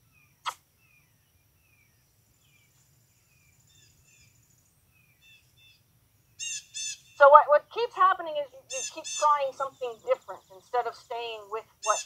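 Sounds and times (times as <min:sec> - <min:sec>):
small birds chirping: 0:00.0 - 0:12.0
loud bird call: 0:08.6 - 0:12.0.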